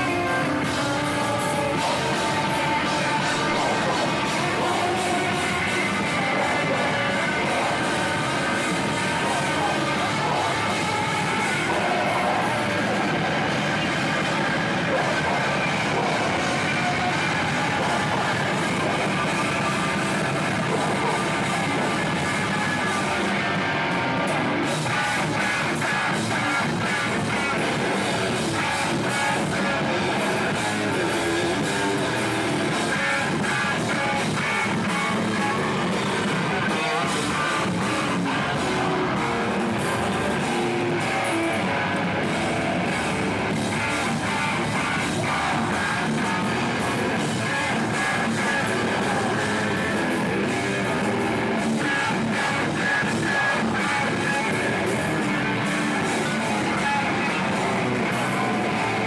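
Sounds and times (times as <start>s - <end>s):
heavy band playing live: 0.0s - 59.0s.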